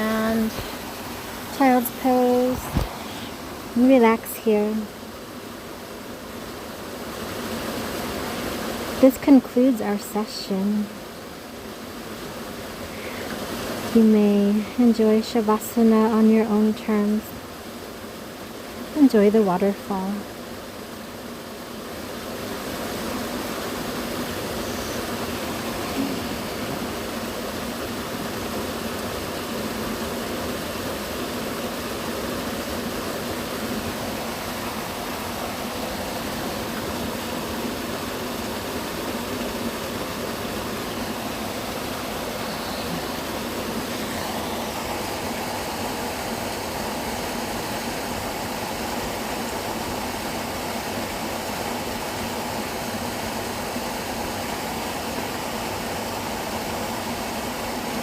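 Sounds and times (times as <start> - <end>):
waterfall rushing: 0.0 - 4.7, 22.1 - 58.0.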